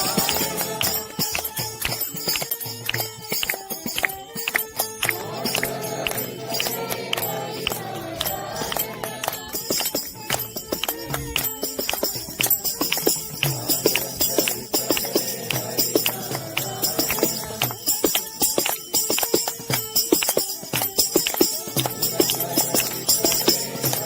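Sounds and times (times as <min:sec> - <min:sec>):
group singing devotional song: 0:00.0 - 0:02.4, 0:05.0 - 0:10.2, 0:12.6 - 0:18.2, 0:21.3 - 0:24.0
jingling hand percussion: 0:00.0 - 0:24.0.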